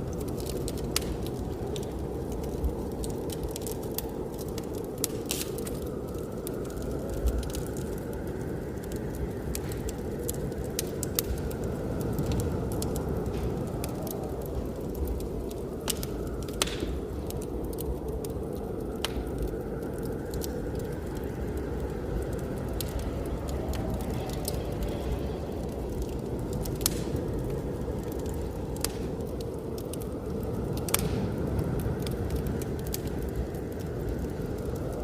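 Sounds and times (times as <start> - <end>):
blizzard wind rushing: 0.0 - 35.0
wood fire crackling and popping: 0.0 - 35.0.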